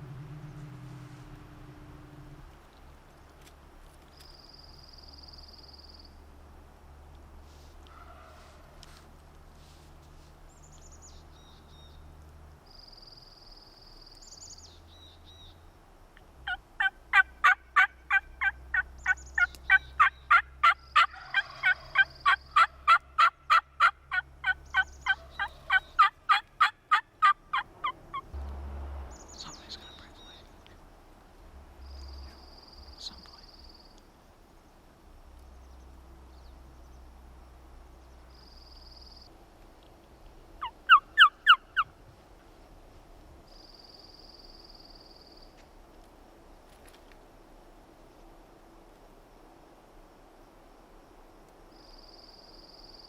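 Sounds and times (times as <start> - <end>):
turkey yelping: 16.5 - 28.3, 40.6 - 41.9.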